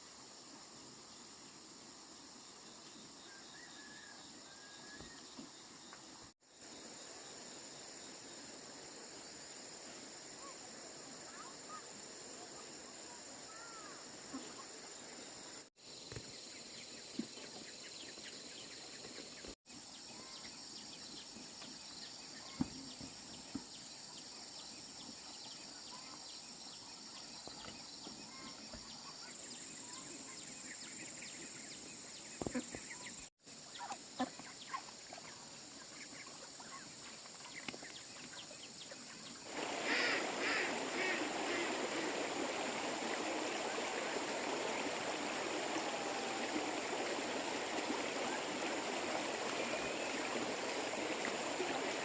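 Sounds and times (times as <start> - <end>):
rush of running water: 39.4 - 52.0
poultry calls: 39.6 - 41.8.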